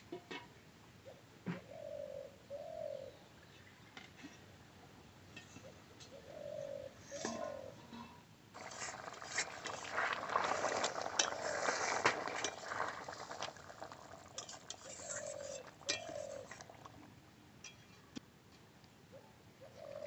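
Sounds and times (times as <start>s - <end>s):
dove cooing: 1.0s - 3.2s, 5.6s - 7.8s, 8.6s - 17.1s, 19.1s - 20.0s
metal utensils clinking on cookware: 10.4s - 16.8s.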